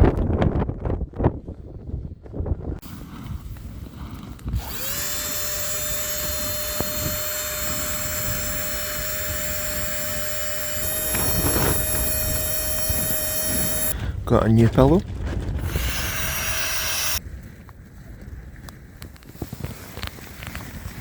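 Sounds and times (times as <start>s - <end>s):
low wind rustle: 0.0s - 21.0s
mini air pump whining: 2.8s - 14.0s, 15.6s - 17.2s.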